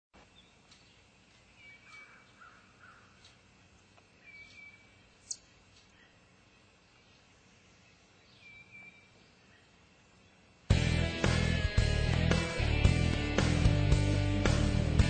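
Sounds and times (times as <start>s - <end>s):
distant birds calling: 0.2s - 13.9s
soft caw-like calls: 1.8s - 3.4s.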